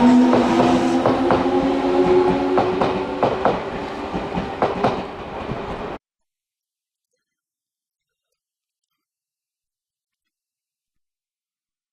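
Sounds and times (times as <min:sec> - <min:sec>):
electric train motor hum: 0:00.0 - 0:05.9
wheels clacking over rail joints: 0:00.1 - 0:06.0.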